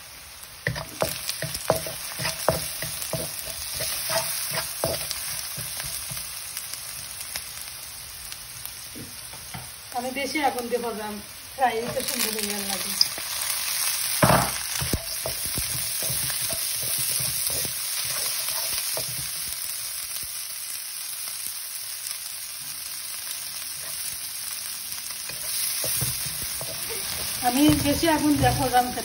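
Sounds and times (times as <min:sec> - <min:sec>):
loud sizzle burst: 0:00.0 - 0:29.0
vegetables sizzling in oil: 0:00.0 - 0:29.0
wooden spatula scraping wok: 0:00.6 - 0:06.4, 0:11.8 - 0:19.6, 0:23.7 - 0:24.1, 0:25.2 - 0:29.0.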